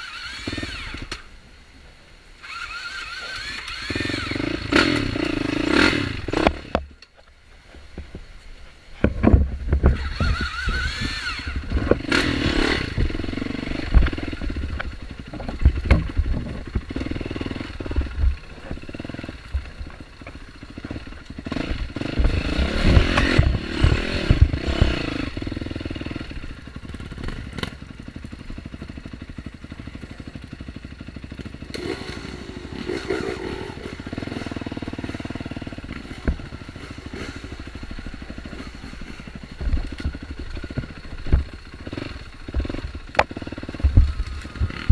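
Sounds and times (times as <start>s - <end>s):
dirt bike engine revving: 0.0s - 1.3s, 2.4s - 6.8s, 9.6s - 44.9s.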